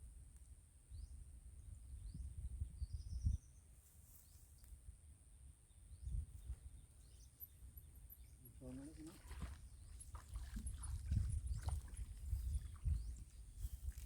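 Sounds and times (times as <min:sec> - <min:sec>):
low rumble of wind: 0:00.0 - 0:14.0
small birds chirping: 0:05.6 - 0:14.0.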